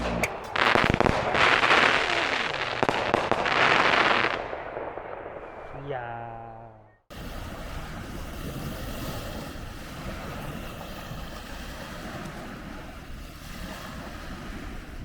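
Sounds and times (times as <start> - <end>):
wind rushing over microphone: 7.1 - 15.0.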